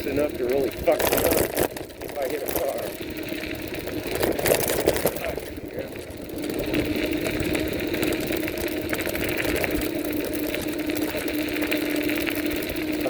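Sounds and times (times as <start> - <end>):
bike rattling clicks: 0.0 - 13.0
electric motor whining: 0.0 - 13.0
wind noise on microphone: 2.7 - 10.0.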